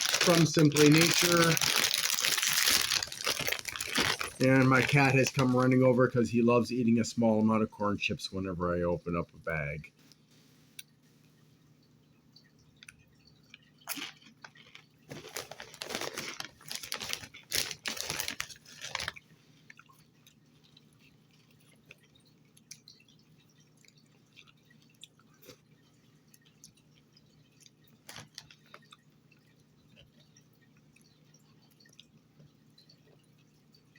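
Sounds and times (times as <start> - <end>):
tortilla chip crunching: 0.0 - 5.8, 13.8 - 23.0, 26.4 - 29.0
chewing clicks: 17.2 - 33.9.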